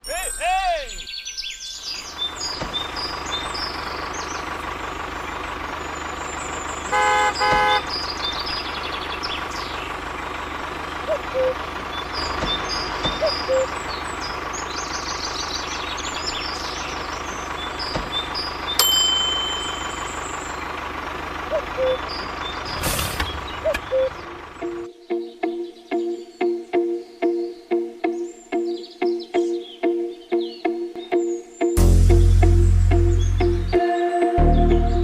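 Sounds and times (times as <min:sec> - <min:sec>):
held high tone: 0:00.0 - 0:01.8, 0:18.8 - 0:20.6
high chirps: 0:00.0 - 0:20.7, 0:21.5 - 0:33.8
short horn toots: 0:06.9 - 0:07.9.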